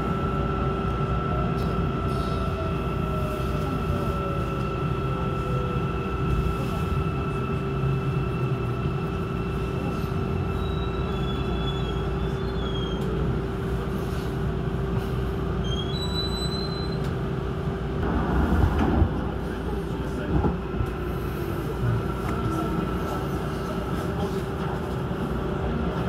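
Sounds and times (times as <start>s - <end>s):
passing train rush: 0.0s - 26.0s
train rolling rumble: 0.0s - 26.0s
faint high squeals: 10.4s - 13.3s, 15.6s - 17.1s.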